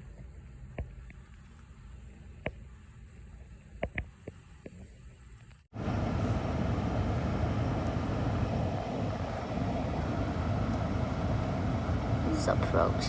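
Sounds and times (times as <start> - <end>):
aircraft engines rushing: 5.8 - 13.0.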